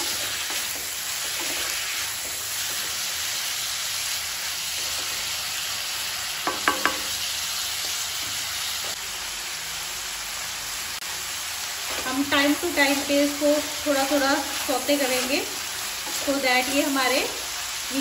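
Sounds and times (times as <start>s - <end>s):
vegetables sizzling in hot oil: 0.0s - 18.0s
spatula clinking against pan: 6.5s - 7.1s.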